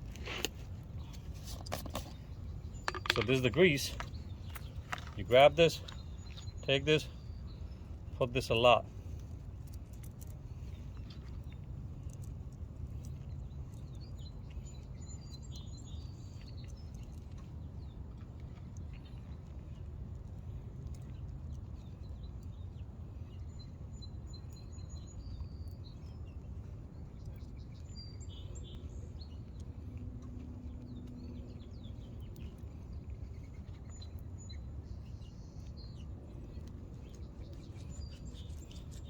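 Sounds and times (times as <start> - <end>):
low background rumble: 0.0 - 39.0
small birds chirping: 0.0 - 39.0.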